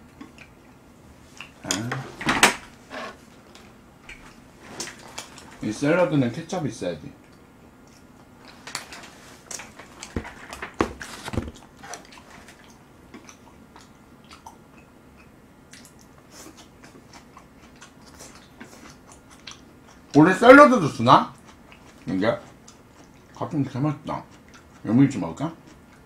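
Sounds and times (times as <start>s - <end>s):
person chewing: 0.0s - 1.9s, 7.2s - 20.2s, 21.3s - 23.4s, 24.1s - 24.9s.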